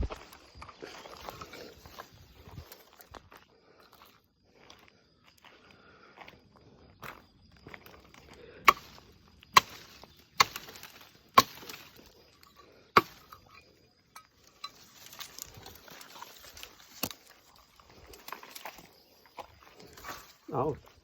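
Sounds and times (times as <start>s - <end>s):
axe chopping into wood: 8.6s - 12.0s, 13.0s - 13.5s
branches rustling: 8.7s - 12.3s, 14.5s - 21.0s.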